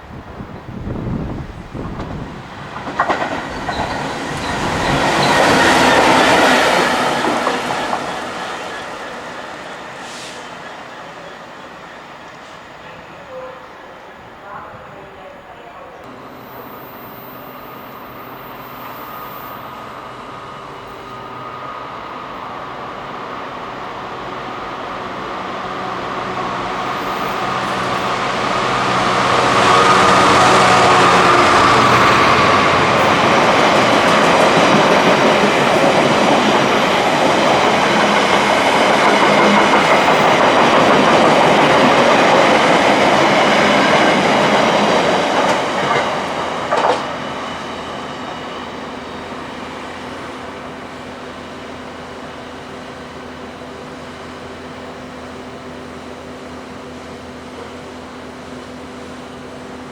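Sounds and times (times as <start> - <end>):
diesel locomotive passing: 0.0 - 59.9
rail noise: 0.0 - 59.9
wheels clattering over rail joints: 45.3 - 47.2.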